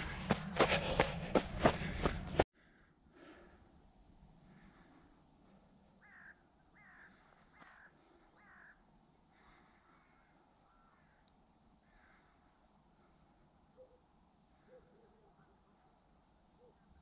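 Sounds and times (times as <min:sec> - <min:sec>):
faint bird calls: 0:05.9 - 0:17.0
short falling bird calls: 0:06.0 - 0:12.5.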